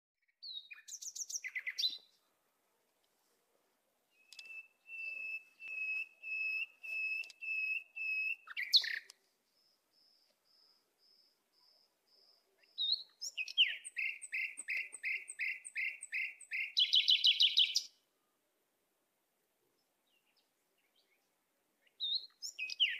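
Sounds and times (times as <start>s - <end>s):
songbird whistling and trilling: 0.4s - 2.1s, 4.1s - 9.7s, 12.6s - 18.0s, 21.9s - 22.9s.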